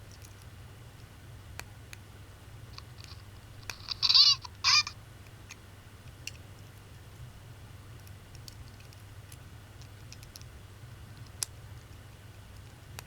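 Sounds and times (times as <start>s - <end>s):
tinny high-pitched toy sounds: 3.7s - 4.9s.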